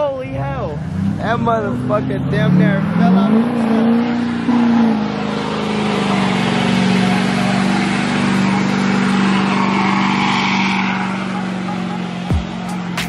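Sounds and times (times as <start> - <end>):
truck engine at high revs: 0.0 - 13.0
tyres spinning on pavement: 3.9 - 13.0.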